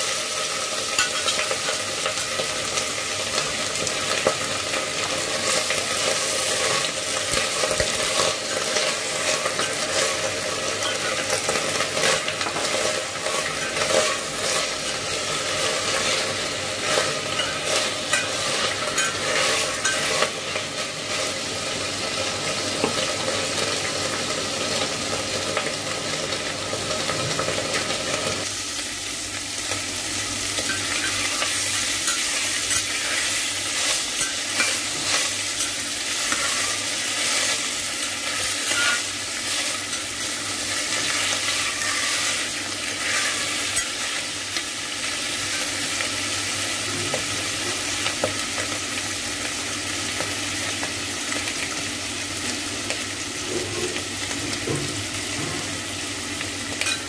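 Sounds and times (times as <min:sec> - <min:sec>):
vegetables sizzling in pot: 0:00.0 - 0:57.0
utensil scraping pot: 0:07.6 - 0:20.6, 0:30.7 - 0:44.3.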